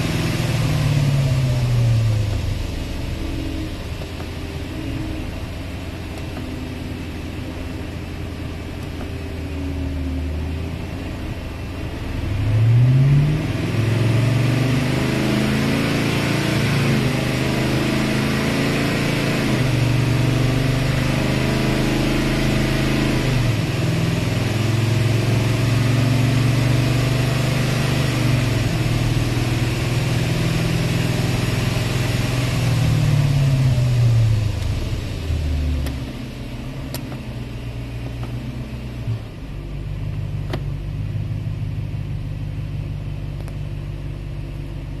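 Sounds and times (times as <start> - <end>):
car engine and road noise: 0.0 - 45.0.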